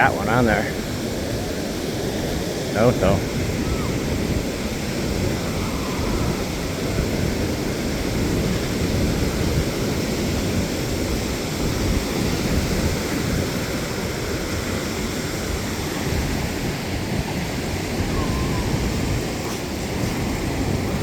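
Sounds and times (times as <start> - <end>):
surf breaking on the beach: 0.0 - 21.0
wind buffeting the microphone: 0.0 - 21.0.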